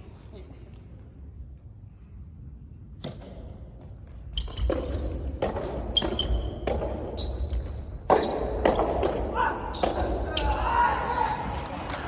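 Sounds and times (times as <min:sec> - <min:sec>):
shoes squeaking on floor: 0:03.8 - 0:09.1.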